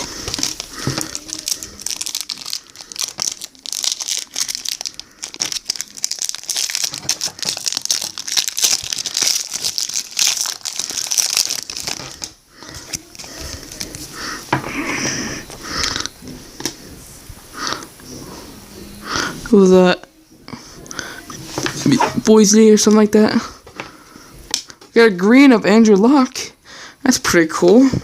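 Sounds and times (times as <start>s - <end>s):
plastic wrapper crinkling: 0.0s - 14.5s.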